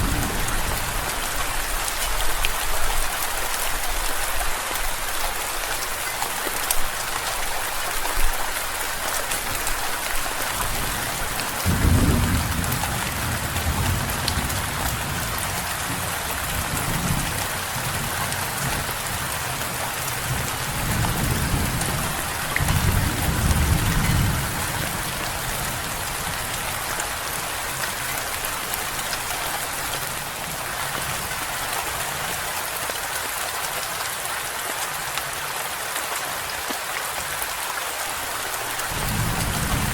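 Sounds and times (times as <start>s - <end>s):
rolling thunder: 0.0s - 1.6s, 10.9s - 17.4s, 38.9s - 39.9s
heavy rain: 0.0s - 39.9s.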